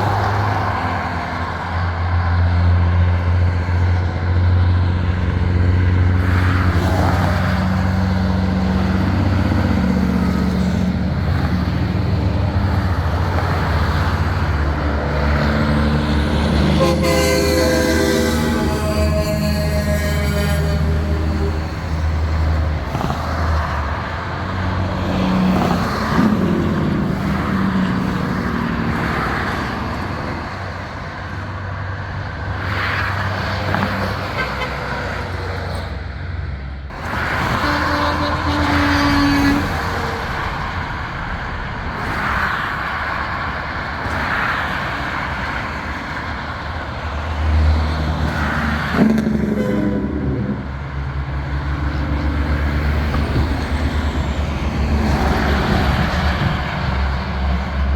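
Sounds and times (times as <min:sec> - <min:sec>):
trucks driving past: 0:00.0 - 0:57.9
short horn note: 0:16.7 - 0:21.5, 0:49.4 - 0:50.6.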